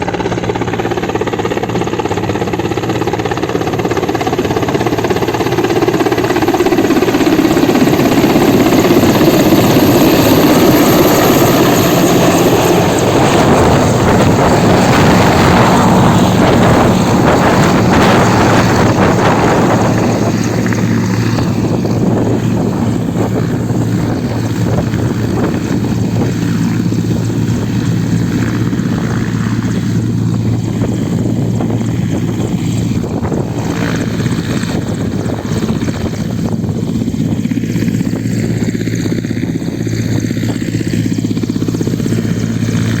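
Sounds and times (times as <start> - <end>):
rushing noise: 9.0 - 36.3
loud motor hum: 9.5 - 39.5.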